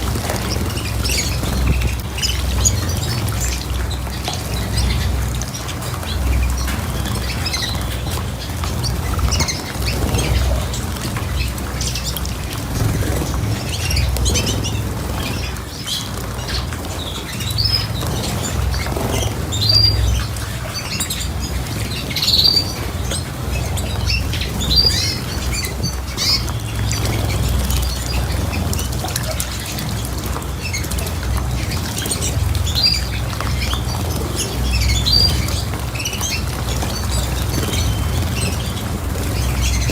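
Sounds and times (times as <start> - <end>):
cage birds chirping and squawking: 0.0 - 39.9.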